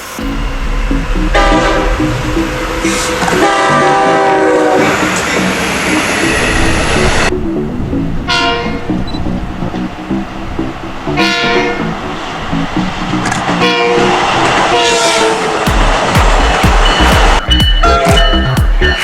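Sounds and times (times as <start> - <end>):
train horn blasts: 0.0 - 7.4, 8.1 - 15.7
train rumble and wheel clatter: 0.0 - 19.0.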